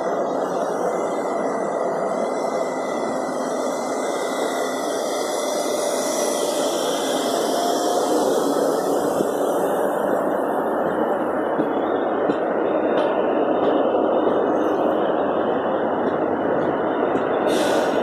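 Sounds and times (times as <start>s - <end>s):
train hiss: 0.0s - 11.2s, 17.3s - 18.0s
train coaches rolling on rails: 0.0s - 18.0s.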